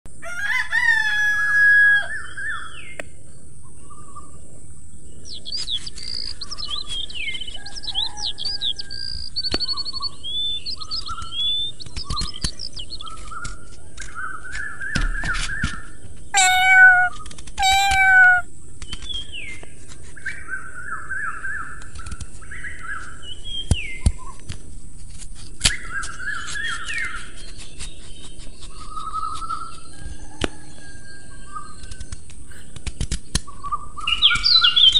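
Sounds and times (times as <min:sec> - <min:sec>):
birds chirping and singing: 0:05.0 - 0:19.7.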